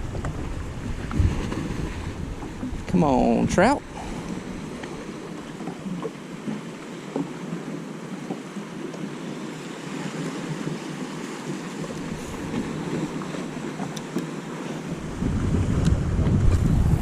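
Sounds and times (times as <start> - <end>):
wind buffeting microphone: 0.0 - 6.1, 11.6 - 17.0
water lapping: 0.0 - 17.0.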